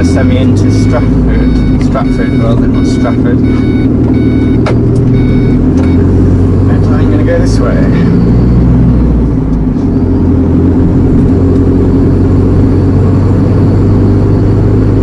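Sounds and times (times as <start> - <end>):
lorry engine low drone: 0.0 - 15.0.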